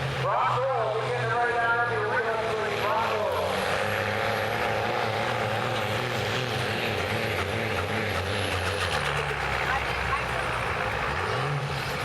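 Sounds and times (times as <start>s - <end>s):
pickup truck engine under load: 3.5s - 12.0s.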